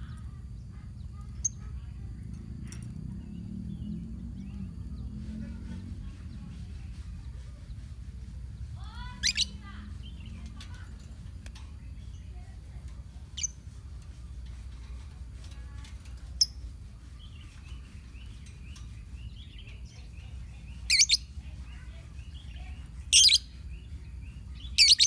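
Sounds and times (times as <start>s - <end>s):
low background rumble: 0.0s - 25.0s
high bird chirp: 8.8s - 25.0s
lovebirds screeching: 8.9s - 10.4s, 17.3s - 25.0s.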